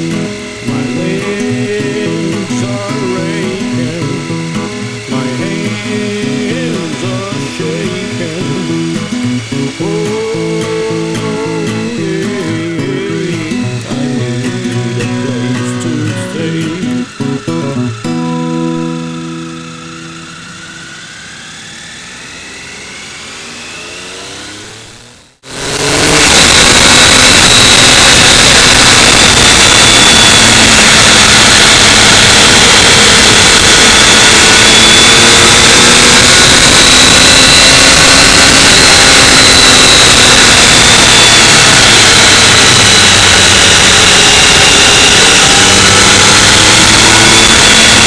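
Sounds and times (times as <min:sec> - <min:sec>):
song playing: 0:00.0 - 0:20.8
motorcycle engine running: 0:00.0 - 0:48.0.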